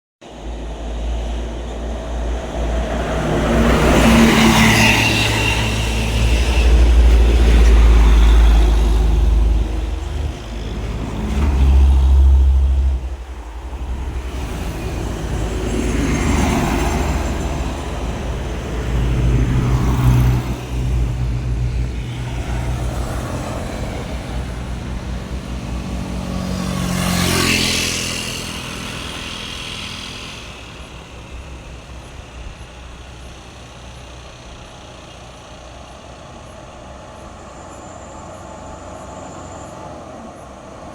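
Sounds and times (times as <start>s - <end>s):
truck engines rumbling: 0.2s - 40.9s
vehicles passing by: 0.2s - 40.9s.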